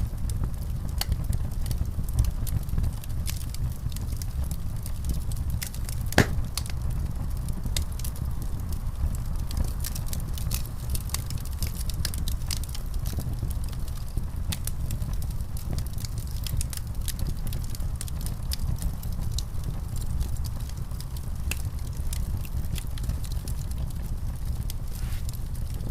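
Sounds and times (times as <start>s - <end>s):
fire crackling: 0.0s - 25.9s
fireplace fire rumbling: 0.0s - 25.9s
loud fire pop: 6.1s - 6.7s.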